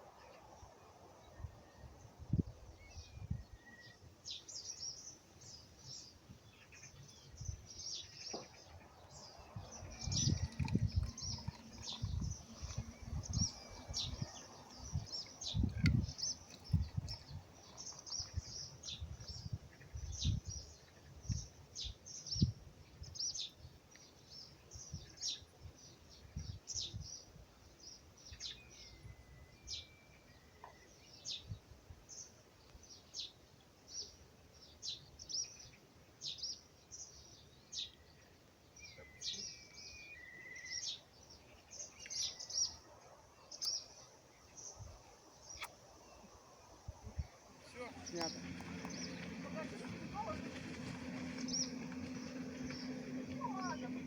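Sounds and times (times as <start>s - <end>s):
songbirds chirping: 0.0s - 54.0s
low rumbling bumps: 9.2s - 19.6s, 47.1s - 54.0s.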